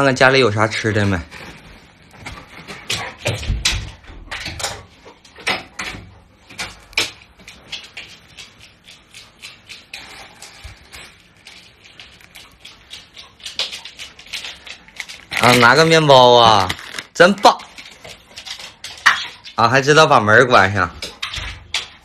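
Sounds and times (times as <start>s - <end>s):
scattered taps and ticks: 4.6s - 10.8s, 11.4s - 15.2s.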